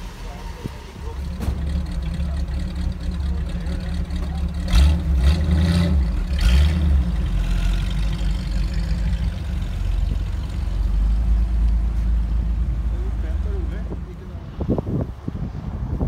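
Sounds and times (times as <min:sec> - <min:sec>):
car engine idling: 0:00.0 - 0:14.2
engine revving: 0:01.0 - 0:11.4.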